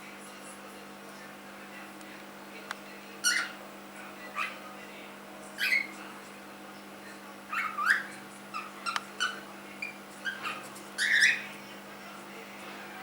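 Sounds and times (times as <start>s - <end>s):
cockatiel chirping and whistling: 3.3s - 3.6s, 7.5s - 11.4s.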